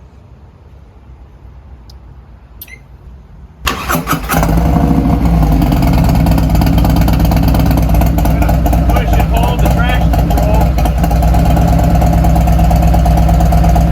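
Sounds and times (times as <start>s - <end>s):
motorcycle engine starting and idling: 3.6s - 13.9s.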